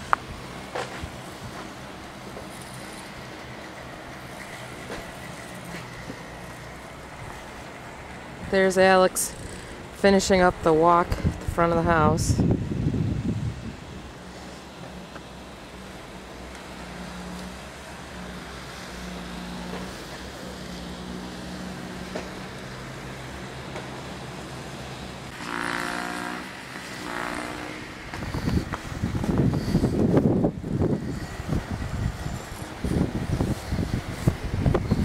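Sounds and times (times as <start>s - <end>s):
snowblower engine running: 0.0s - 12.0s, 13.4s - 35.0s
loud rushing noise: 11.2s - 35.0s.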